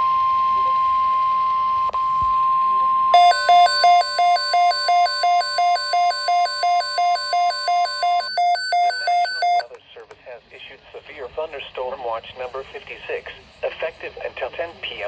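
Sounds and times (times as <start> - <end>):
pulsing two-note electronic alarm: 2.3 - 9.7
steady high electronic tone: 3.1 - 9.7.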